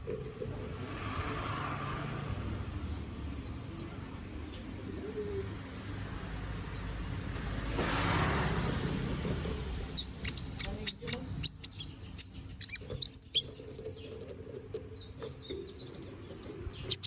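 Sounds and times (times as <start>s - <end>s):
faint high bird chirps: 9.9s - 17.0s.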